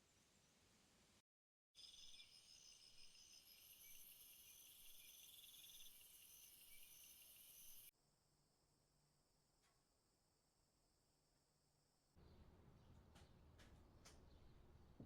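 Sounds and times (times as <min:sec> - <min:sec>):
insects trilling: 0:01.8 - 0:07.9.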